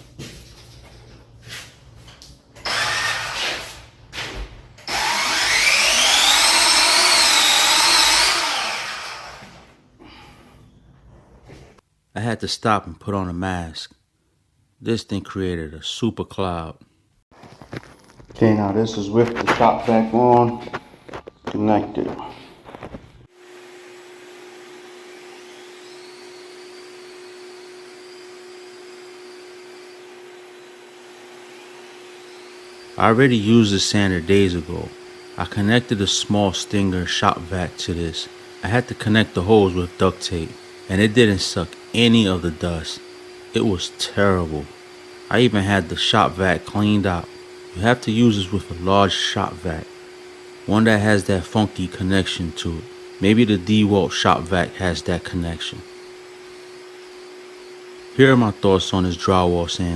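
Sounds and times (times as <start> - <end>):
shop vac suction noise: 0.0 - 11.8, 17.4 - 59.9
drywall sander motor whine: 2.6 - 10.2, 17.4 - 59.9.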